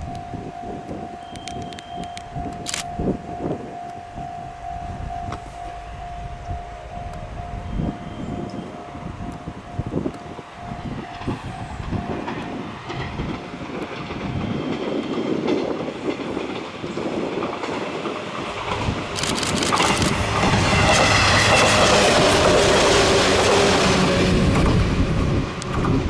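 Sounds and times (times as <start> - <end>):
electric train passing: 0.0 - 26.0
wheels clacking over rail joints: 10.0 - 26.0.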